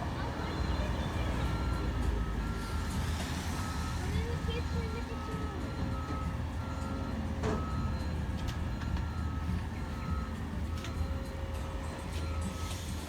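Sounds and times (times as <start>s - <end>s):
garbage truck engine rumble: 0.0s - 13.0s.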